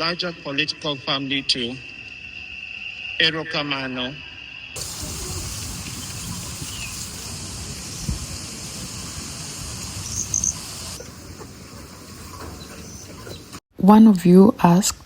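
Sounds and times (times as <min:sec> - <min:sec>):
high insect or rain hiss: 0:00.0 - 0:11.0.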